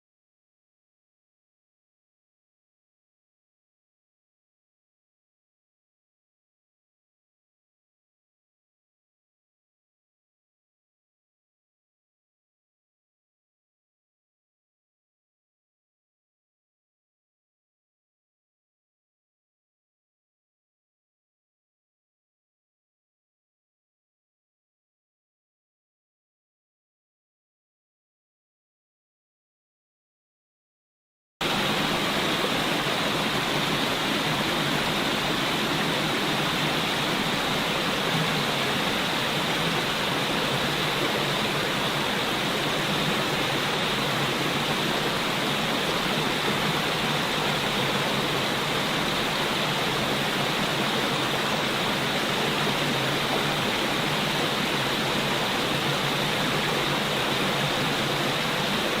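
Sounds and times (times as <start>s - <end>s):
water rushing: 31.4s - 59.0s.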